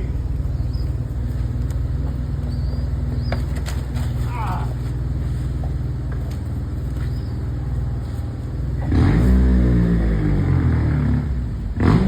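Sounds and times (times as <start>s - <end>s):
vehicle engine running: 0.0s - 12.0s
car accelerating past: 8.8s - 12.0s.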